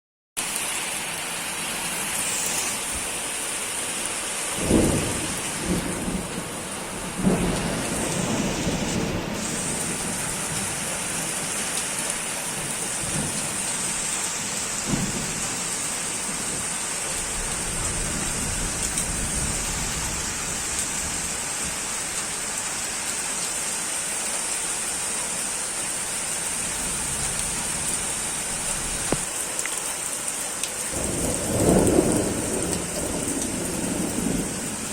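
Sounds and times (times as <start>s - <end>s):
steady rain falling: 0.4s - 34.9s
thunder rumbling: 4.5s - 11.8s, 14.8s - 21.8s, 30.9s - 34.9s.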